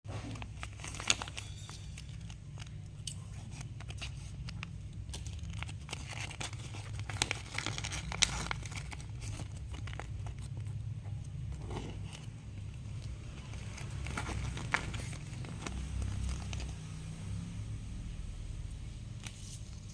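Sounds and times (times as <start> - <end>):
plastic packaging crinkling and tearing: 0.1 - 17.4.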